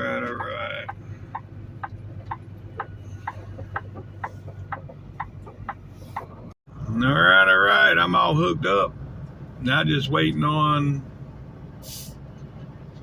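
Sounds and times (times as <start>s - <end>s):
diesel engine low hum: 0.0s - 13.0s
turn-signal flasher ticking: 0.1s - 6.3s.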